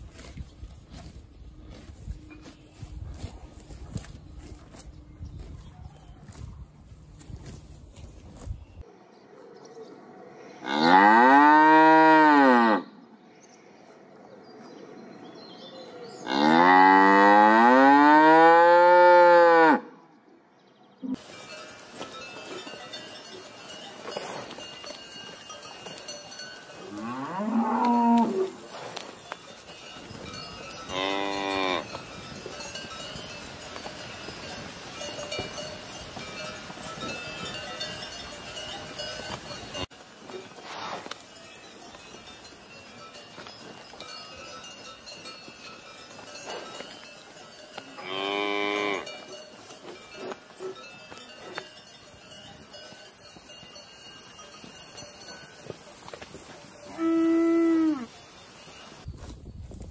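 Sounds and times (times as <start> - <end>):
cowbells ringing faintly: 21.1 - 59.3
cattle mooing: 26.8 - 28.6, 30.9 - 32.0, 48.0 - 49.1.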